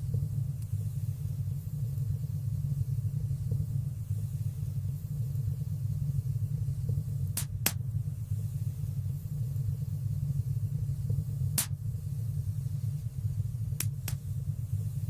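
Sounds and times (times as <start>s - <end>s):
sharp fire crackles: 7.4s - 7.9s.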